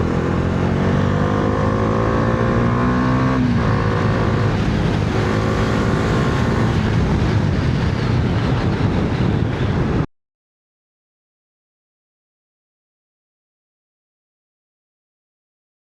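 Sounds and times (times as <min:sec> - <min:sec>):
wind rush on microphone: 0:00.0 - 0:10.1
motorcycle engine running: 0:03.2 - 0:10.0.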